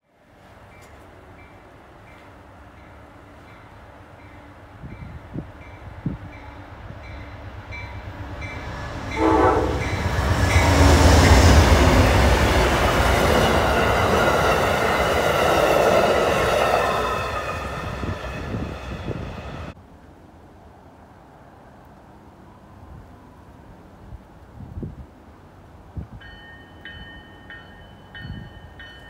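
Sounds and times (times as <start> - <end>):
train rushing and rumbling past: 0.2 - 29.0
train horn blast: 9.0 - 12.2.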